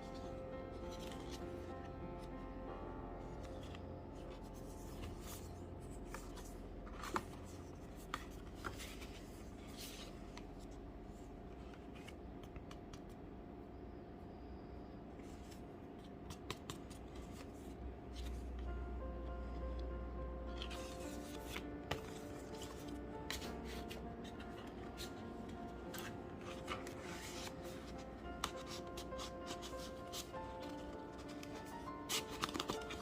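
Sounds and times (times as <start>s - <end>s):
packaging rustling and scraping: 20.6s - 33.0s.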